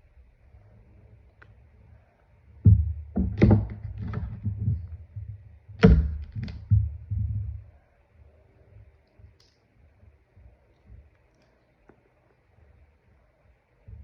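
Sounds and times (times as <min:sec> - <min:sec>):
slime soft thumps and clicks: 0:02.7 - 0:07.7.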